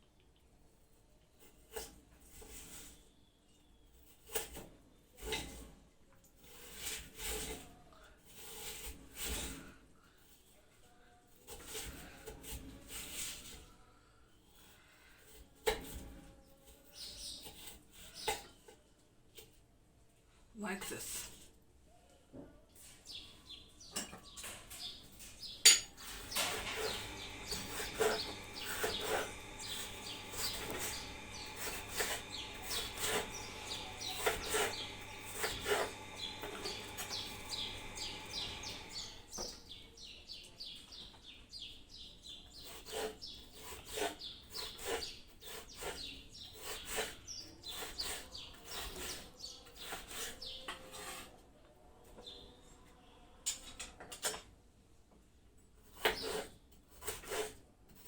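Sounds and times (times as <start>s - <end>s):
knife cutting potatoes: 4.0s - 5.7s, 11.4s - 13.6s, 14.6s - 16.2s, 16.8s - 18.7s, 25.8s - 39.6s, 42.6s - 51.3s, 55.8s - 58.0s.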